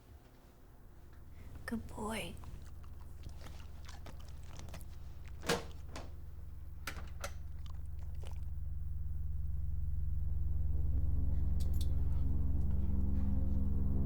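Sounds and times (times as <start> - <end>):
low droning score tone: 5.9 - 14.0.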